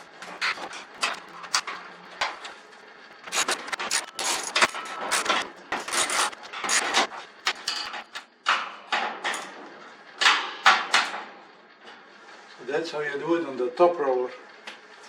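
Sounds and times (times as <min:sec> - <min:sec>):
metal hardware clinking and rattling: 0:03.3 - 0:08.2.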